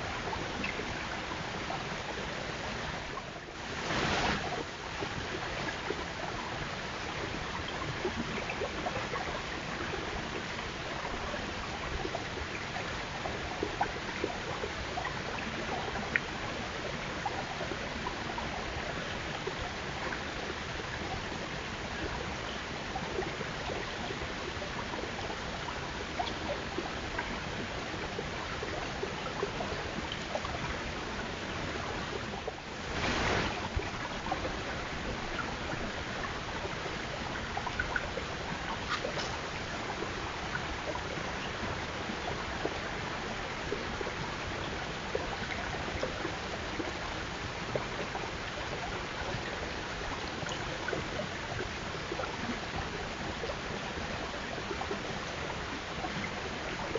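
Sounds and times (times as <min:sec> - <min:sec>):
hissing outdoor noise: 0:03.6 - 0:04.6, 0:32.6 - 0:37.0.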